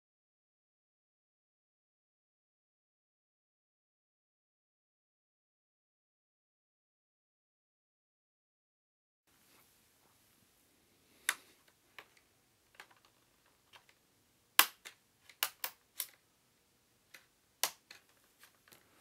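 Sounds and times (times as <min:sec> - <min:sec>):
plastic clips snapping: 0:14.6 - 0:16.2, 0:17.1 - 0:18.9.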